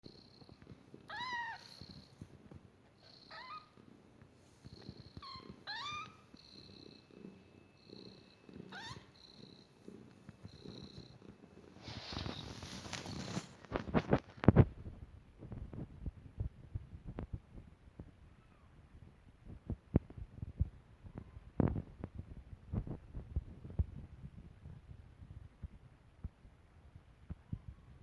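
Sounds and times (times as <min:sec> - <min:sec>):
low rattling purr: 0:06.4 - 0:13.5.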